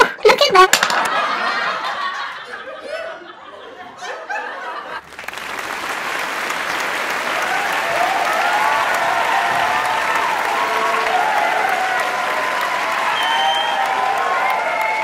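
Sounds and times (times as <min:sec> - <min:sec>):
audience chuckling and laughing: 0:01.0 - 0:05.6
audience applause: 0:05.0 - 0:15.0.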